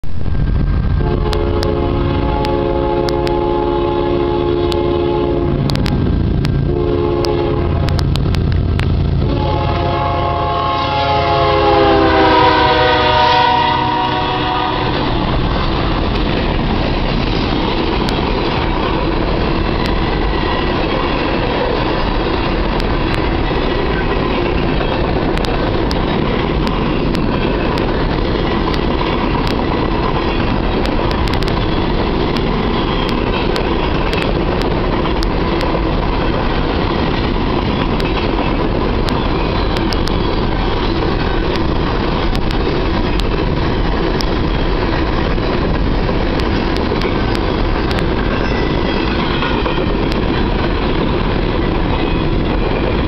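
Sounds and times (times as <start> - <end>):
train cars clattering past: 0.1 - 53.0
train air horn blasts: 1.0 - 5.8, 6.6 - 8.0, 9.2 - 15.3.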